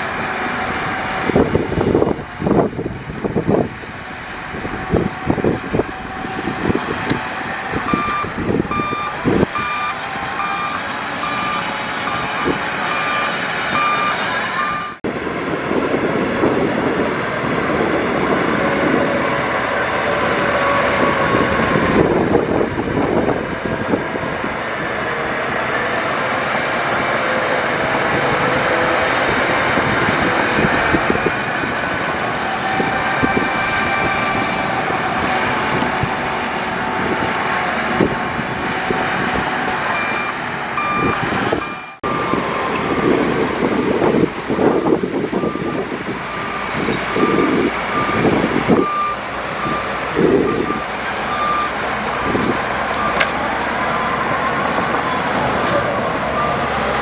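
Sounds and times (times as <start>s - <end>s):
diesel engines running: 0.0s - 57.0s
reversing alarm beeping: 7.4s - 15.0s, 39.9s - 55.4s.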